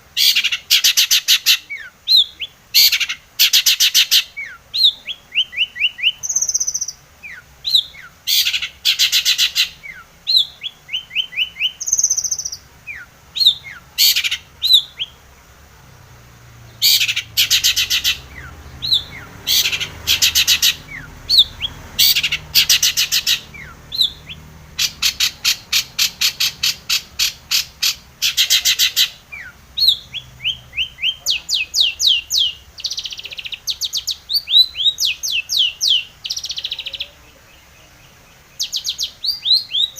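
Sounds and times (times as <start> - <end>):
shrike singing: 0.0 - 39.9
bird rattling call: 18.9 - 24.2, 24.8 - 29.2.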